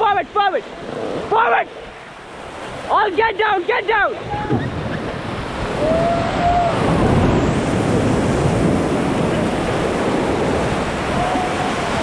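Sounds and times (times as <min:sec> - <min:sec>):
whitewater rushing and crashing: 0:00.0 - 0:12.0.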